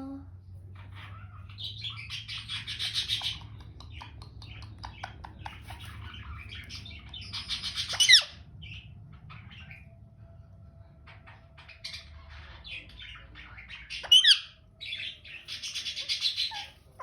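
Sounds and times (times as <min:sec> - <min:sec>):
parrot squawking: 0:00.8 - 0:03.7, 0:04.8 - 0:08.4, 0:11.1 - 0:17.0
parrot chirps and clicks: 0:02.8 - 0:08.3.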